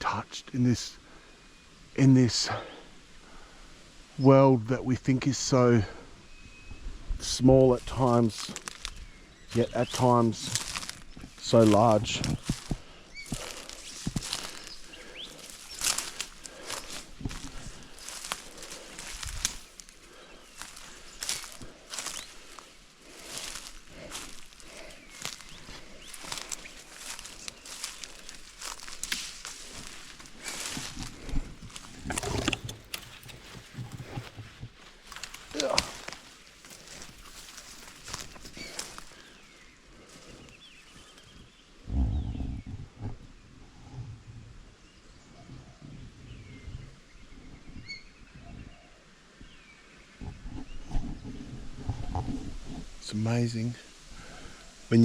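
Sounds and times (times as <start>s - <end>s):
footsteps rustling on ground: 7.2s - 41.6s
bird chirps: 8.6s - 17.1s, 46.3s - 51.4s.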